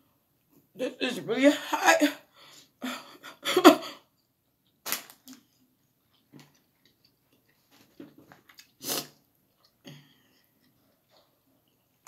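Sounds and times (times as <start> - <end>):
person chewing noodles: 4.1 - 4.8, 5.4 - 12.0.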